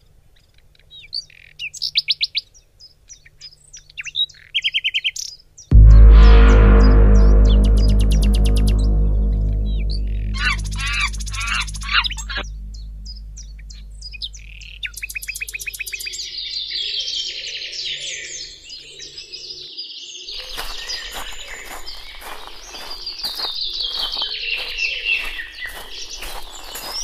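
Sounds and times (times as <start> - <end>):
birds chirping and trilling: 10.4 - 27.0.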